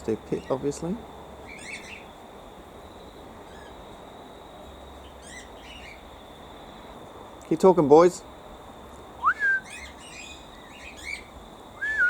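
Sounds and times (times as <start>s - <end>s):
cockatiel chirping calls: 9.4s - 11.3s.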